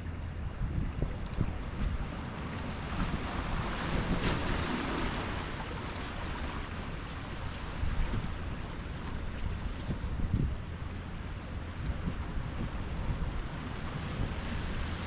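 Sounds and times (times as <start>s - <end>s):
wind rumble on microphone: 0.0s - 15.0s
ocean wave breaking: 2.0s - 8.6s.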